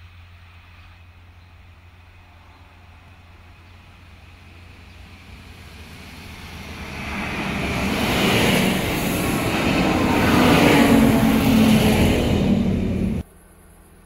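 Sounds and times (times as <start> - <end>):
train passing at speed: 0.0 - 13.2
low engine drone: 0.0 - 13.9
wheel-on-rail hiss: 4.0 - 13.2.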